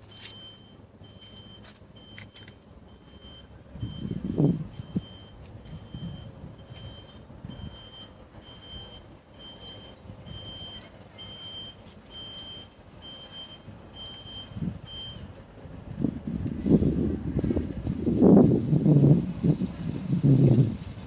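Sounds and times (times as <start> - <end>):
electronic beeper two-tone beeps: 0.1 - 15.2
low wind rumble: 2.7 - 21.0.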